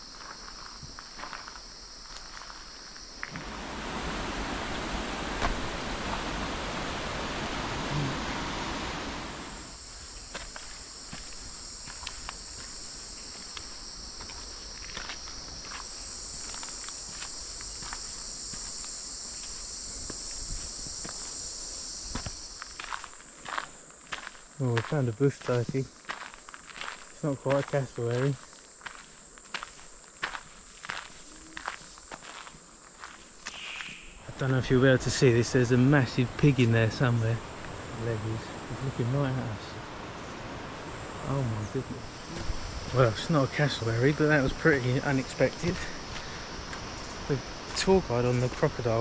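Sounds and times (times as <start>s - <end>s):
footsteps on forest trail: 0.0s - 7.3s, 9.4s - 21.4s, 22.1s - 34.3s, 42.2s - 43.7s, 44.3s - 49.0s
insects chorus: 0.0s - 49.0s
rushing noise: 3.3s - 9.8s.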